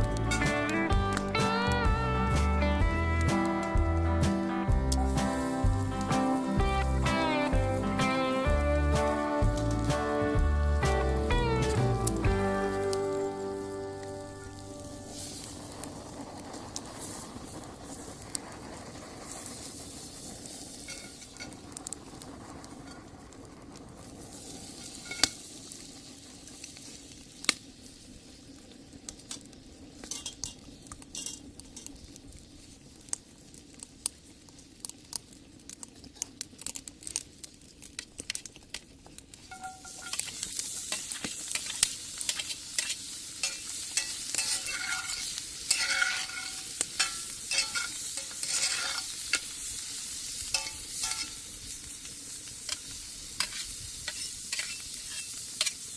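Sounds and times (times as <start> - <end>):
food sizzling in a skillet: 0.0 - 55.9
utensil scraping a pan: 39.5 - 49.6, 50.5 - 51.5, 52.7 - 55.9.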